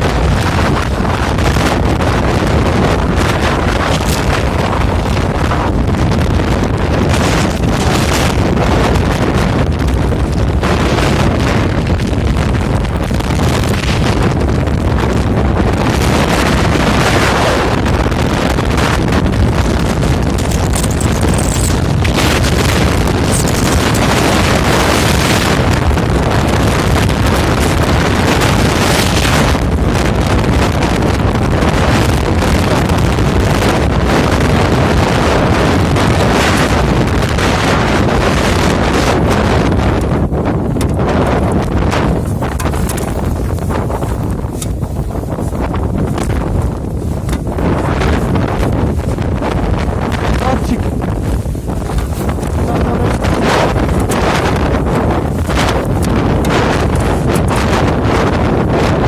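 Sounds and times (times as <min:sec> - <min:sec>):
blizzard wind buffeting microphone: 0:00.0 - 0:59.0.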